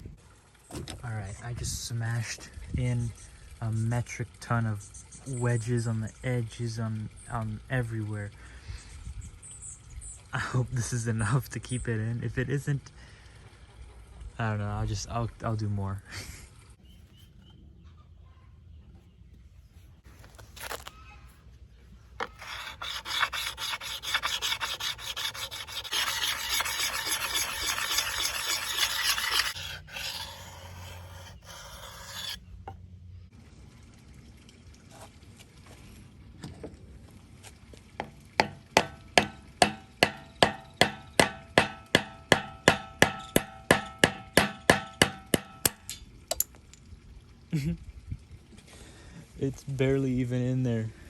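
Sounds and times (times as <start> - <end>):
wood being rasped: 22.2 - 32.4.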